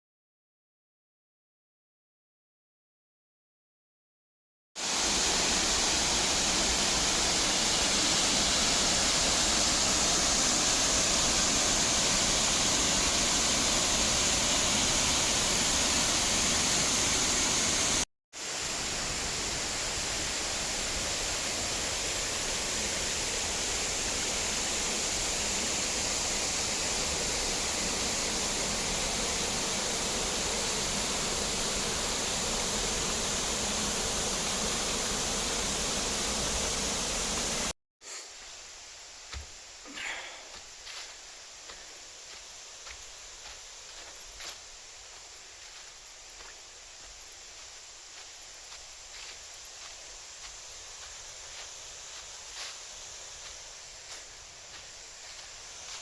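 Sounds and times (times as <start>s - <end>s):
waterfall roaring: 4.8s - 37.7s.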